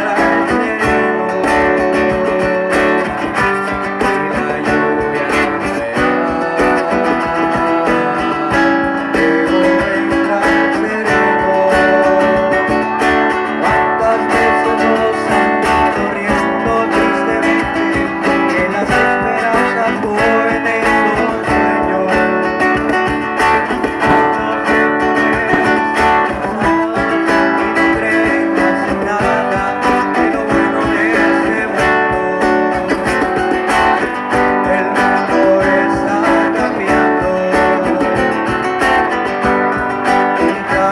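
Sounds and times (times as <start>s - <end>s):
guitar plucked and strummed: 0.0s - 40.9s.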